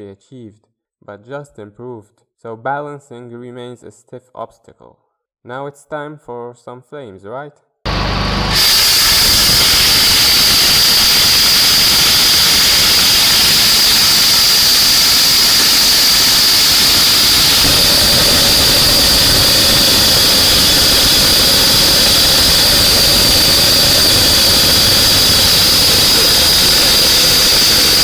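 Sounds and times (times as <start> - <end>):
low engine tone: 7.9 - 10.5, 14.9 - 28.0
high steady whine: 7.9 - 28.0
jet engine rushing hiss: 7.9 - 28.0.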